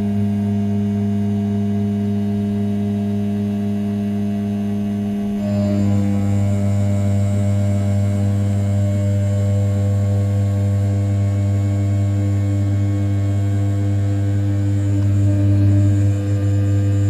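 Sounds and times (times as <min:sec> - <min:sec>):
milling machine spindle humming: 0:05.3 - 0:17.0.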